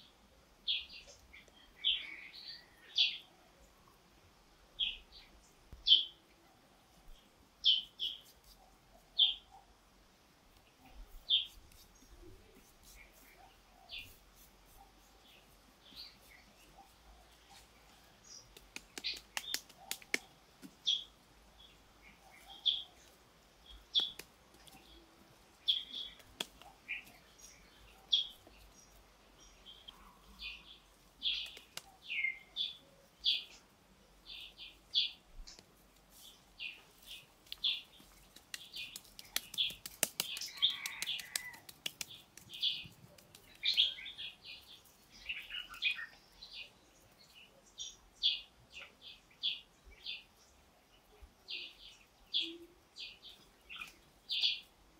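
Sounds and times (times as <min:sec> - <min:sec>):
small birds chirping: 0:00.0 - 0:54.9
faint clicks: 0:37.4 - 0:43.8.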